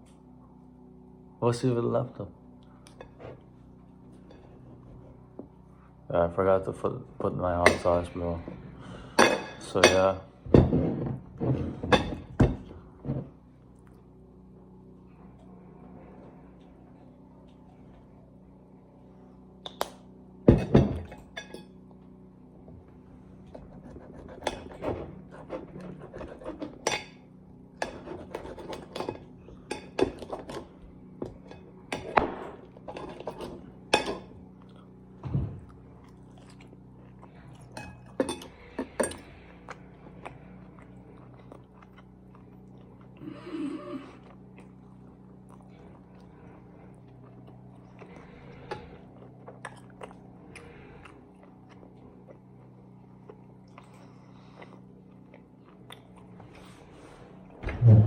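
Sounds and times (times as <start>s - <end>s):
steady low hum: 0.0s - 58.0s
knife and fork scraping plate: 23.5s - 27.2s, 27.8s - 30.6s
chewing: 34.4s - 56.9s.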